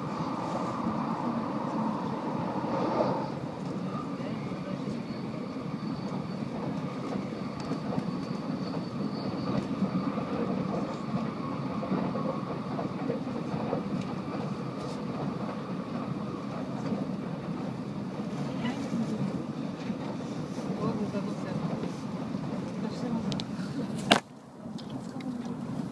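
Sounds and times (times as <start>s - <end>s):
train cabin running rumble: 0.0s - 25.9s.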